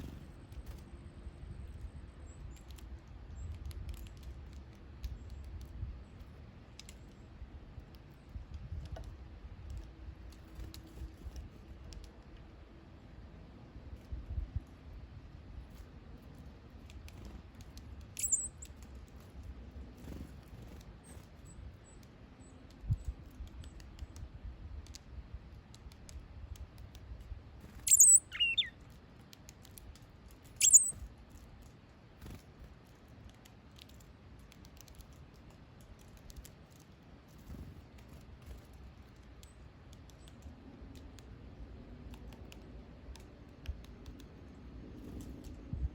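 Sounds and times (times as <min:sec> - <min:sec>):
small bird chirping: 0:18.0 - 0:19.0, 0:27.6 - 0:29.0, 0:30.5 - 0:31.1.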